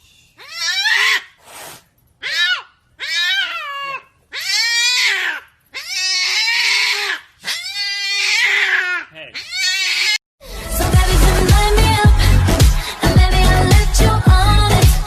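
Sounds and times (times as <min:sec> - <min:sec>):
cat meowing loudly: 0:00.4 - 0:01.3, 0:02.2 - 0:10.2.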